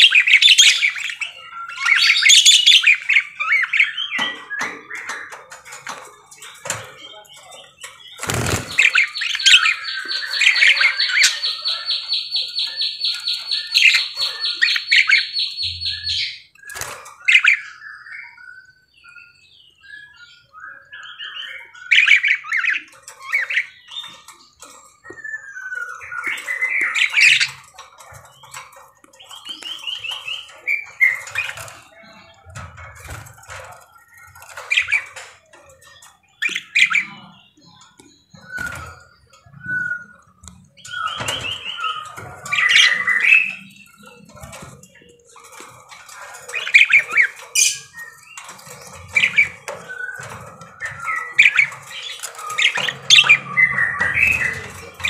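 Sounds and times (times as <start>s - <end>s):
budgerigars chirping and squawking: 0.0s - 55.0s
budgerigars chattering: 7.6s - 16.4s, 40.8s - 55.0s.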